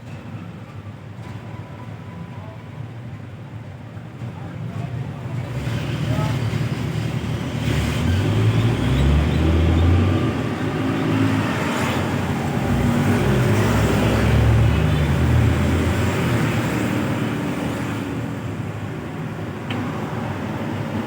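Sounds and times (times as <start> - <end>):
highway traffic: 0.0 - 21.0.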